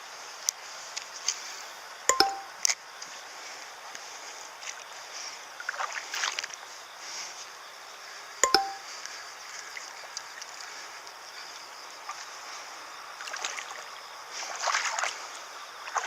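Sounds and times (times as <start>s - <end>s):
sharp ringing clink: 8.4s - 8.8s
flowing river water: 13.2s - 16.0s.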